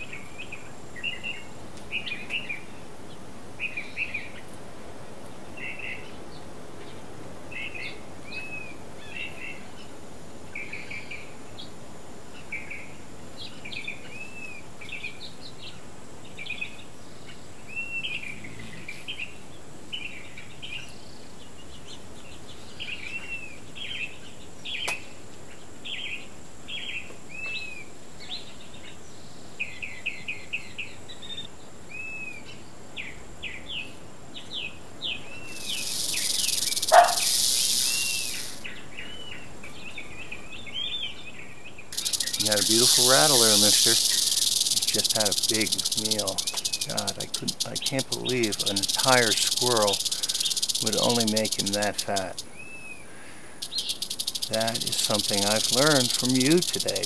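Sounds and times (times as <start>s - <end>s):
steady background hiss: 0.0s - 57.0s
birds singing and chirping: 34.4s - 57.0s.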